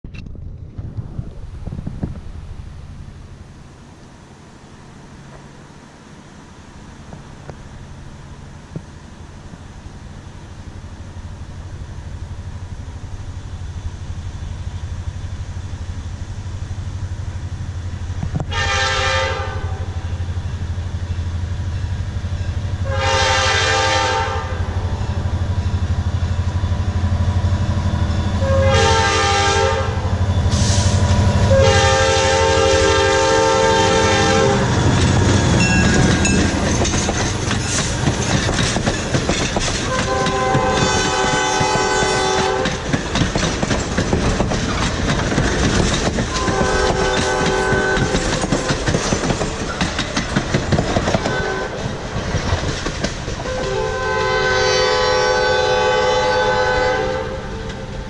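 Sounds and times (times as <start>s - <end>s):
diesel locomotive engine rumble: 0.1s - 58.0s
locomotive air horn: 18.4s - 20.2s, 22.8s - 24.8s, 28.3s - 34.8s, 39.9s - 42.8s, 46.3s - 48.4s, 51.2s - 51.9s, 53.4s - 58.0s
train wheels clattering over rails: 32.7s - 54.4s.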